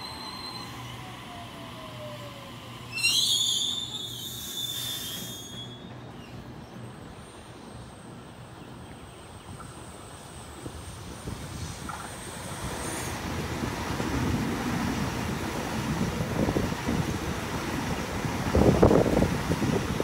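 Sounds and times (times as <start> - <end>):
high squeal with hiss: 0.0 - 6.4
electric train whine: 0.0 - 20.0
train low rumble: 0.0 - 20.0.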